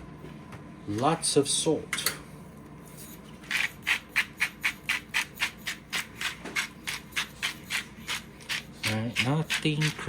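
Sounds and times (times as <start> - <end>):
salt shaker rasping: 3.5 - 10.0.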